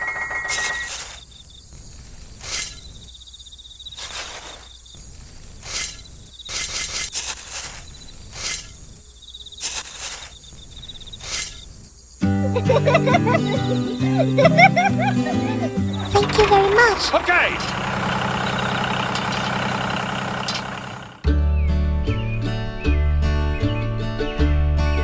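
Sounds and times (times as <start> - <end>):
crickets trilling in pulses: 0.0 - 12.4
steady high insect tone: 0.0 - 16.2.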